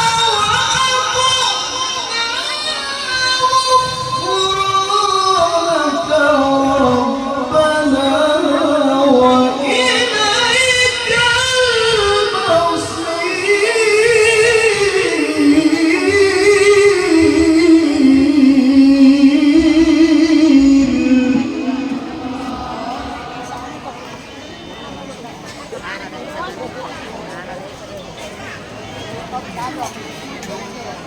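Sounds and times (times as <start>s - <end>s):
man reciting melodically: 0.0s - 24.8s.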